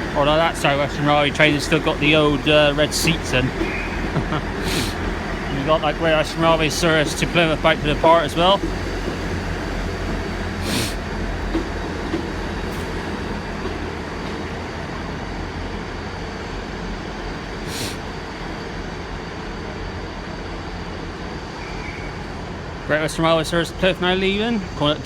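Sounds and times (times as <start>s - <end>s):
diesel train engine idling: 0.0s - 25.0s
air hisses: 4.6s - 5.0s, 10.6s - 11.1s, 17.6s - 18.1s.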